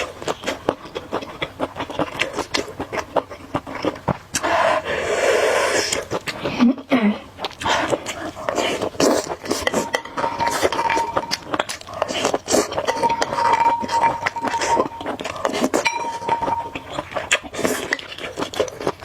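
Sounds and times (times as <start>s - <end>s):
utensils clinking on a bowl: 9.1s - 18.5s
thin steady tone: 9.6s - 11.8s, 12.7s - 17.2s.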